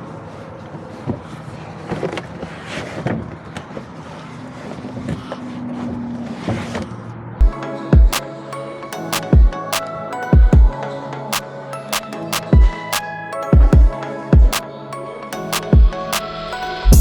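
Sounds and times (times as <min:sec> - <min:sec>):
van road and engine noise: 0:03.1 - 0:07.4
electronic music: 0:07.4 - 0:17.0.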